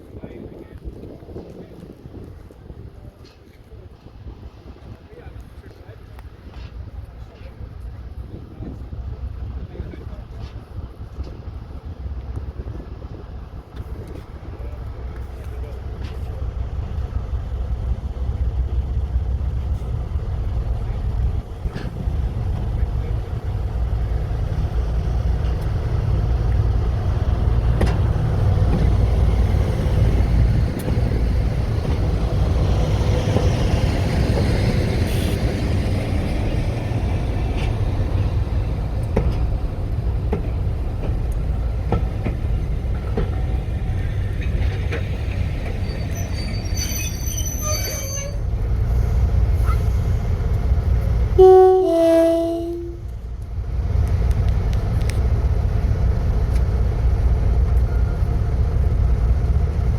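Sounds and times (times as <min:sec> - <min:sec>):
diesel locomotive engine rumble: 0:00.0 - 0:59.9
two-tone train horn: 0:51.4 - 0:53.1.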